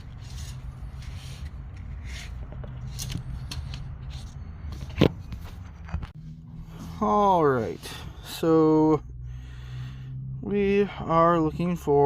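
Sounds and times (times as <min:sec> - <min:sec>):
soft rustling and handling: 0:00.0 - 0:08.1
low hum: 0:00.0 - 0:10.6.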